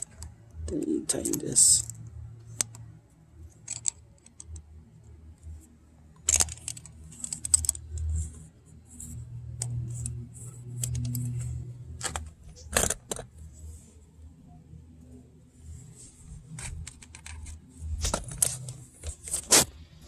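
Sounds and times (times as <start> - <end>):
small metal clicks and taps: 0.0 - 4.7, 6.2 - 8.4, 9.5 - 13.3.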